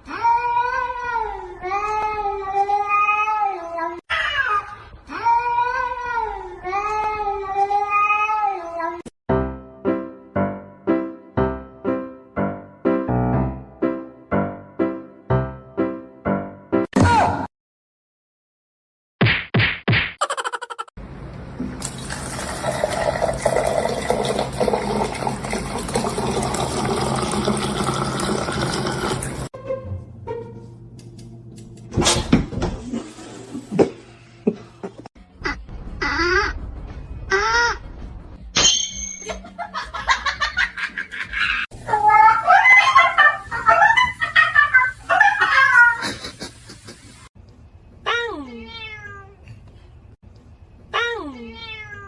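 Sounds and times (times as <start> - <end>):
cat yowling: 4.1 - 4.7, 41.8 - 44.2, 44.8 - 46.0
piano music: 9.3 - 16.9
water running: 21.4 - 29.5, 41.7 - 47.3.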